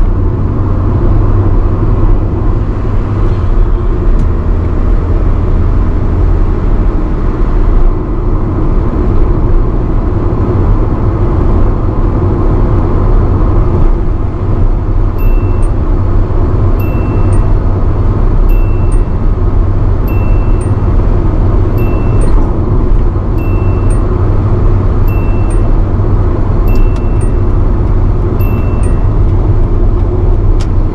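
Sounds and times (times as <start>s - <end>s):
car engine: 0.0s - 30.9s
road noise: 0.0s - 30.9s
high warning chime: 15.2s - 29.8s.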